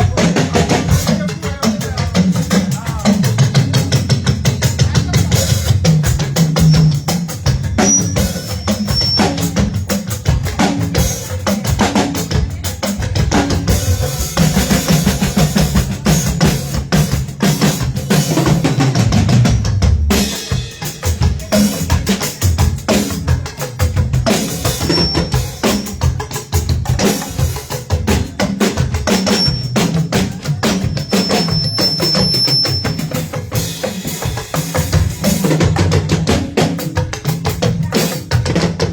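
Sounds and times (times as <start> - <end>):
drum kit playing: 0.0 - 38.9.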